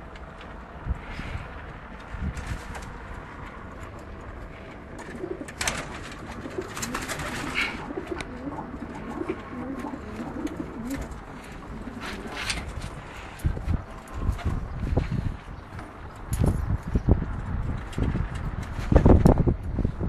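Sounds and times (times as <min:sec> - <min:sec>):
sharp clicks and rustles: 0:01.6 - 0:19.9
pigeons cooing: 0:04.4 - 0:15.9.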